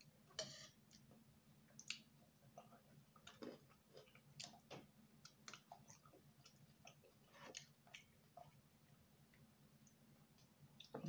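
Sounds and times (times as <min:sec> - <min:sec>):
chewing and wet mouth clicks: 0:01.8 - 0:08.6.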